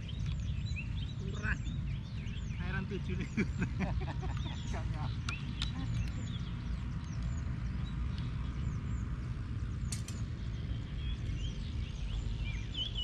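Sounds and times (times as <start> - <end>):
small birds chirping: 0.0 - 13.0
steady low rumble: 0.0 - 13.0
sharp click: 9.9 - 10.3.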